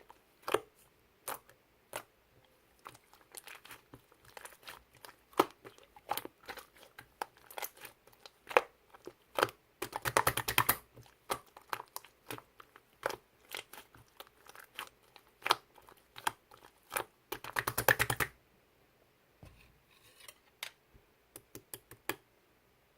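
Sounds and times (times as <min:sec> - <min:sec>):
sharp clicks and taps: 0:20.6 - 0:22.2.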